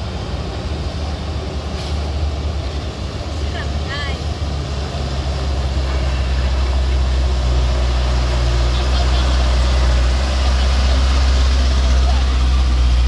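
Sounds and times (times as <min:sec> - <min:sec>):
heavy vehicle engine idling: 0:00.0 - 0:13.0.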